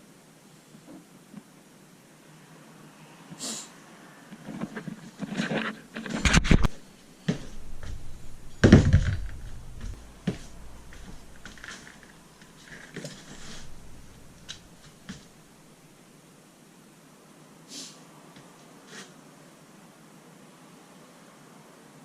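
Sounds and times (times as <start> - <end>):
rustling: 4.5 - 15.8
sharp knocks: 6.6 - 11.7
heavy thump: 7.3 - 11.8.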